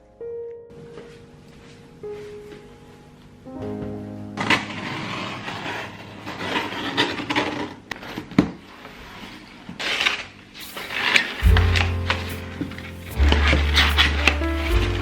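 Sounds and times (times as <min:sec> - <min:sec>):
objects rustling and rubbing: 0:04.6 - 0:15.0.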